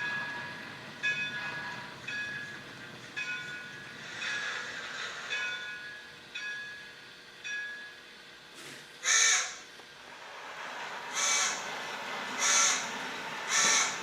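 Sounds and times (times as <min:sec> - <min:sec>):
locomotive bell ringing: 0:00.0 - 0:08.3
crow cawing: 0:09.0 - 0:09.6, 0:11.1 - 0:11.7, 0:12.4 - 0:14.0.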